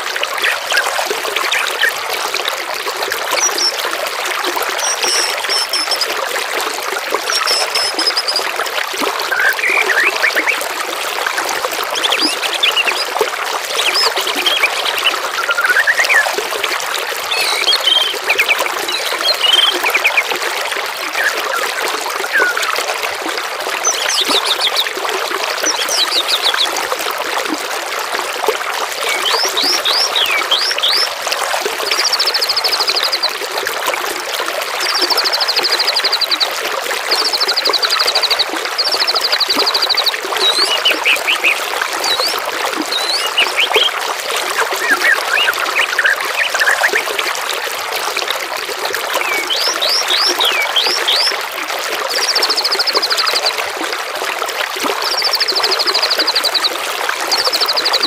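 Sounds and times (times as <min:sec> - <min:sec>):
trickling gurgling water: 0:00.0 - 0:58.0
songbirds calling: 0:04.7 - 0:06.1, 0:07.2 - 0:08.5, 0:09.3 - 0:10.6, 0:11.9 - 0:16.4, 0:17.3 - 0:20.3, 0:23.8 - 0:25.0, 0:25.6 - 0:26.8, 0:29.0 - 0:31.1, 0:37.1 - 0:47.1, 0:49.2 - 0:51.4.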